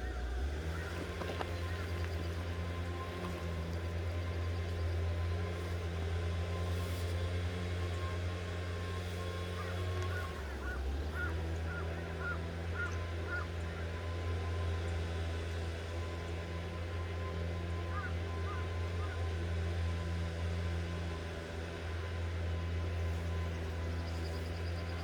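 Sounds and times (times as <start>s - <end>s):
bird calling: 0.0s - 6.0s, 7.9s - 14.0s
low engine drone: 0.0s - 25.0s.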